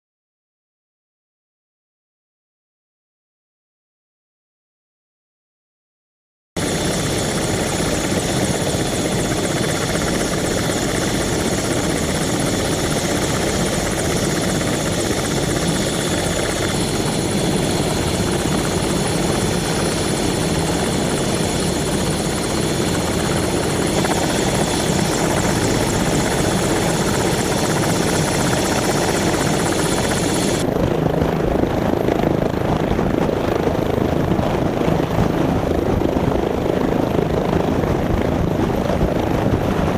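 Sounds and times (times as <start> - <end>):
high turbine whine: 6.6 - 35.1
helicopter rotor and engine noise: 6.6 - 39.9.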